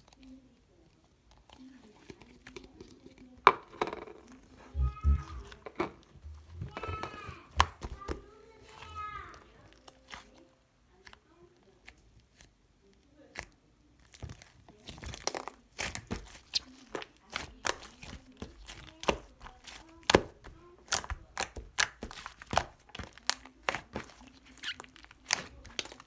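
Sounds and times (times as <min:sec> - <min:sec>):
slime crackling and snapping: 0:13.3 - 0:26.0.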